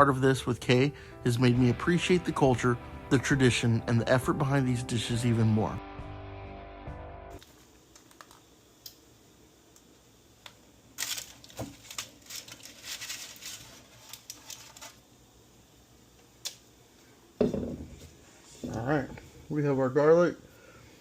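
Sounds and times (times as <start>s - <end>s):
kitchen items clicking and rustling: 11.0s - 15.0s.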